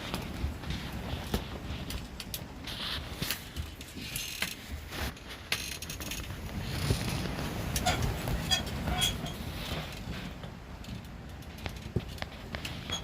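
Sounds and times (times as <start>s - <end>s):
rustling hiss: 0.0s - 13.0s
wind buffeting microphone: 6.1s - 13.0s.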